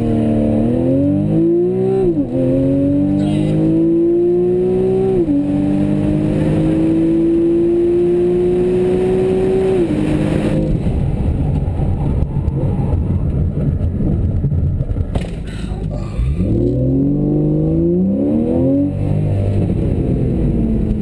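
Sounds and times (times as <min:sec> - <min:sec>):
car engine pulling hard: 0:00.0 - 0:21.0
rough unpitched rumble: 0:09.9 - 0:18.0.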